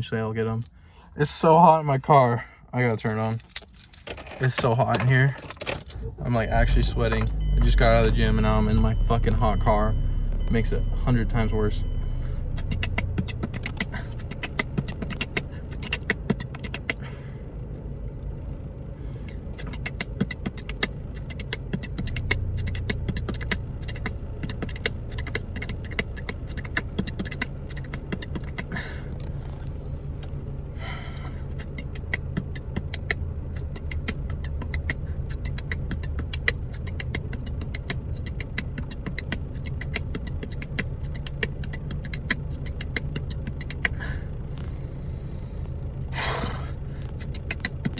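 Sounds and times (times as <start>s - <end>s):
car engine humming: 3.1s - 47.9s
person beatboxing: 19.5s - 28.8s, 31.6s - 44.0s.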